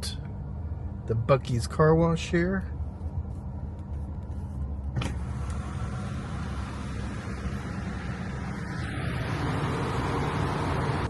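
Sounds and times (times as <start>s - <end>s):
car low rumble: 0.0s - 11.0s
car wash equipment hissing: 5.0s - 11.0s.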